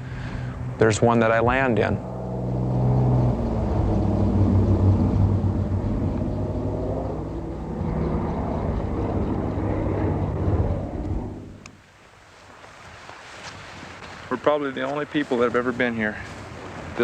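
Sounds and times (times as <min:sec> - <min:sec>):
propeller engine drone: 0:00.0 - 0:11.8.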